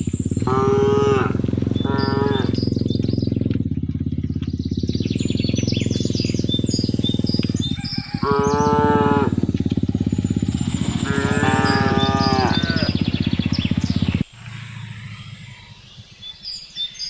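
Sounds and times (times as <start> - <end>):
small engine running: 0.0 - 16.8
birds chirping: 0.0 - 17.0
cow mooing: 0.4 - 2.6, 8.1 - 9.6, 10.5 - 13.3.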